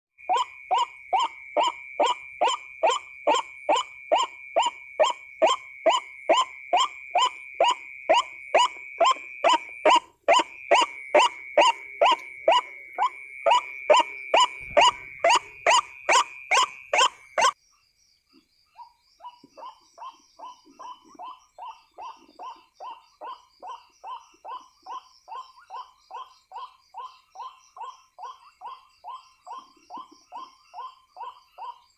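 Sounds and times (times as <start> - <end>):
waterhen calling: 0.3 - 17.6.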